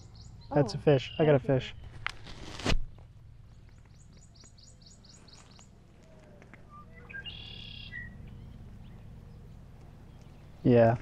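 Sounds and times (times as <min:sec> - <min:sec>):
songbirds singing: 0:00.0 - 0:02.1, 0:02.9 - 0:11.0
low steady rumble: 0:02.8 - 0:11.0.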